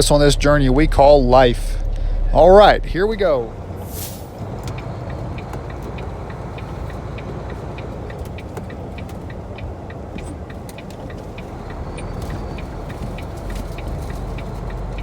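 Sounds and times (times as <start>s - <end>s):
truck engine rumble: 0.0s - 15.0s
turn signal ticking: 0.0s - 15.0s.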